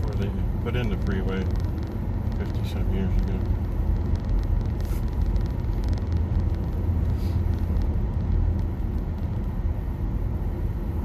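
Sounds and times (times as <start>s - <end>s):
road and tyre noise in car cabin: 0.0s - 11.0s.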